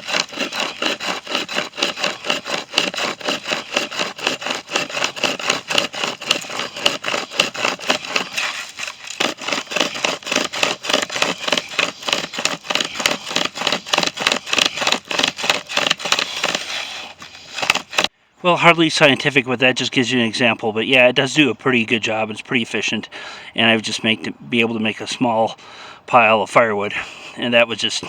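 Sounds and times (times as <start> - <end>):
hand chainsaw rasping through wood: 0.0 - 18.1.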